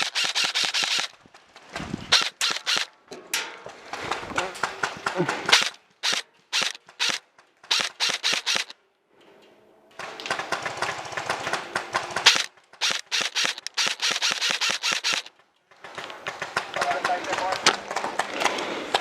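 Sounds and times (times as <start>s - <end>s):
airsoft guns firing: 0.0s - 1.2s, 2.1s - 2.9s, 4.6s - 8.7s, 10.0s - 18.6s.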